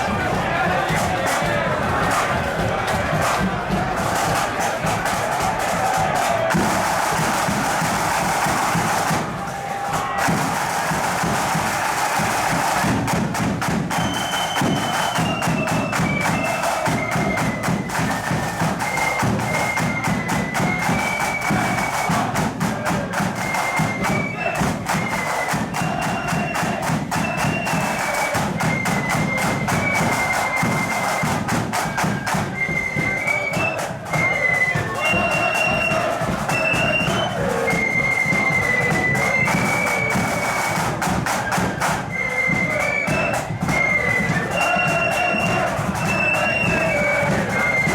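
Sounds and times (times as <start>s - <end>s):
bass drum beats: 0.0s - 17.9s
flute melody: 0.0s - 47.9s
snare drumming: 0.0s - 47.9s.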